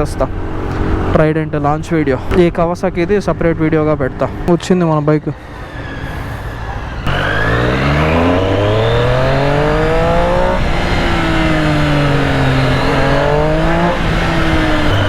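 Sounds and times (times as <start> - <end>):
motorcycle engine accelerating: 0.0 - 2.1, 5.4 - 15.0.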